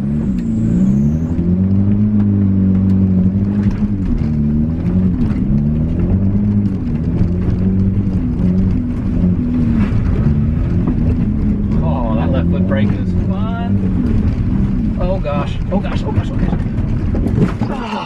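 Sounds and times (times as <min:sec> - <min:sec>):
riding lawnmower engine revving: 0:00.0 - 0:18.0.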